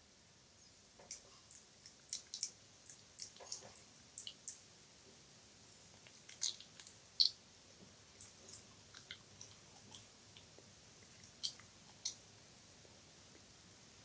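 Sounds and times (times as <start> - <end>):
wet mouth clicks and smacks: 6.0 - 7.4.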